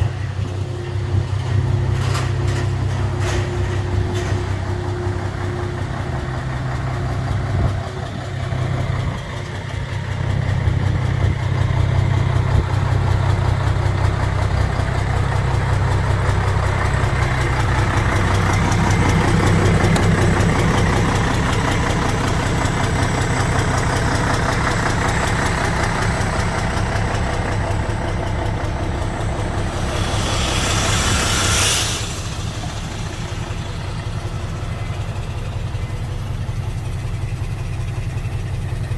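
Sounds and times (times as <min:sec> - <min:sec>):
truck diesel engine drone: 0:00.0 - 0:38.9
hiss: 0:24.6 - 0:35.5.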